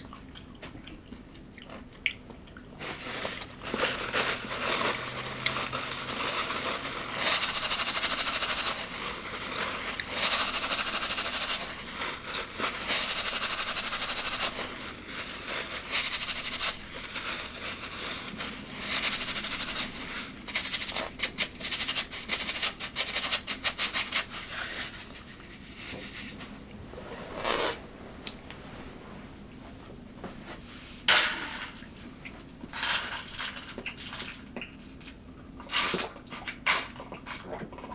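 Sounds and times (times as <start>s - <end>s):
chewing and crunching food: 0.0s - 8.0s, 33.8s - 37.9s.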